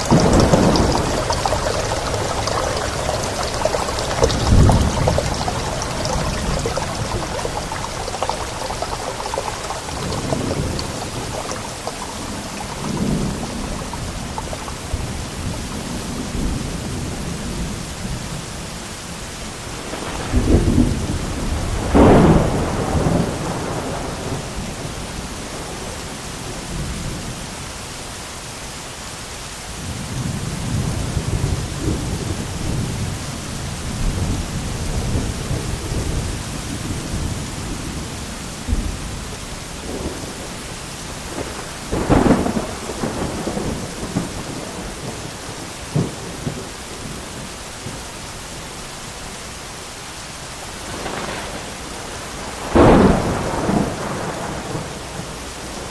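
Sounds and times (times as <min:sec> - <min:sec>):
loud thunderclap: 0:00.0 - 0:17.1, 0:41.3 - 0:47.2, 0:50.8 - 0:55.9
rolling thunder: 0:00.0 - 0:17.6, 0:19.8 - 0:25.8, 0:41.2 - 0:47.2, 0:50.8 - 0:55.9
steady rain: 0:00.0 - 0:55.9.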